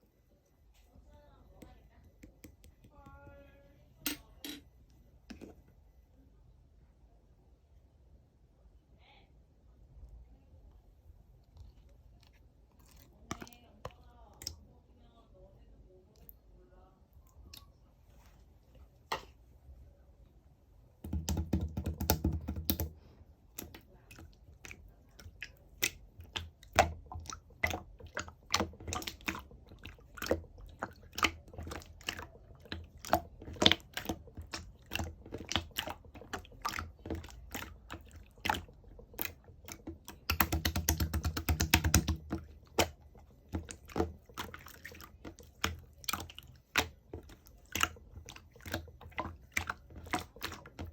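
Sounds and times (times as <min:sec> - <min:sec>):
slime clicking pops and squishes: 0:21.1 - 0:22.9, 0:30.2 - 0:44.6.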